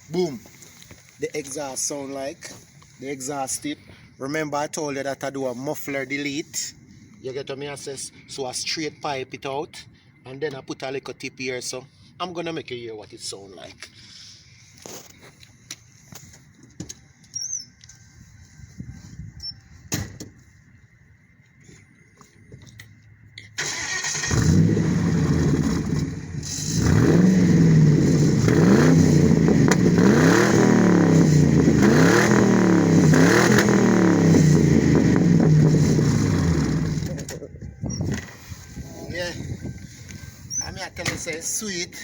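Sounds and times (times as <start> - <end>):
loud car engine revving: 24.1 - 37.2.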